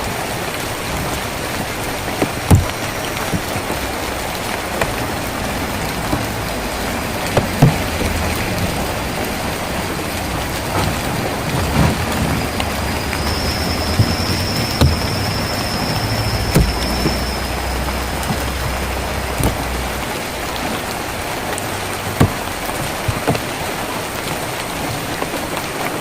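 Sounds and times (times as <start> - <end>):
rain on a tin roof: 0.0 - 26.0
thin steady high tone: 12.4 - 19.8.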